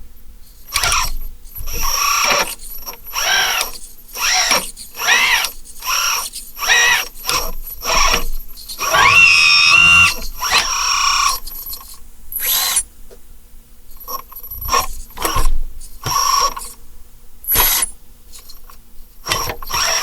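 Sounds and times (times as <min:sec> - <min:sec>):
toy bulldozer motors whining: 0:00.7 - 0:12.9, 0:19.2 - 0:20.0.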